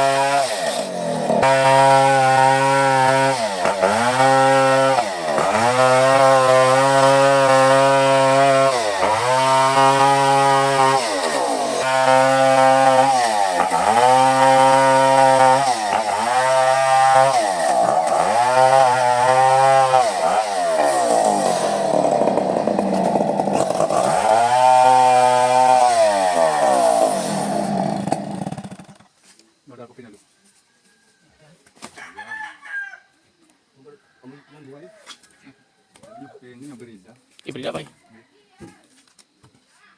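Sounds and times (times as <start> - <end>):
chainsaw cutting wood: 0.0 - 29.2.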